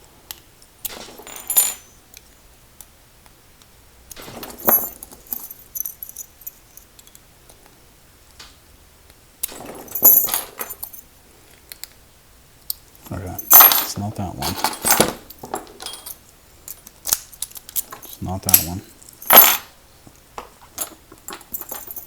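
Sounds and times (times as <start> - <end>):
metal keys jangling: 0.9 - 2.0, 4.1 - 7.1, 9.5 - 11.1, 13.1 - 19.7, 20.6 - 22.0.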